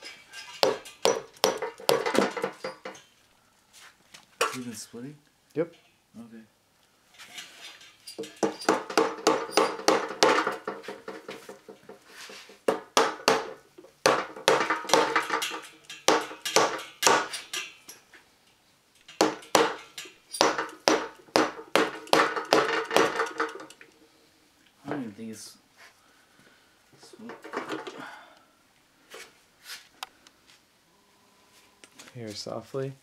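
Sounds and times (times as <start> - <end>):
hammer striking metal: 0.5 - 3.0, 8.2 - 10.8, 12.7 - 17.8, 19.1 - 23.7.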